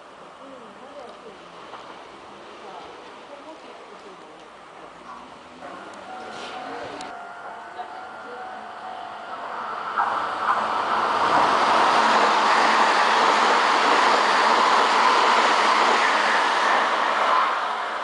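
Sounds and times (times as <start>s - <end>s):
electric train passing at speed: 4.6s - 18.0s.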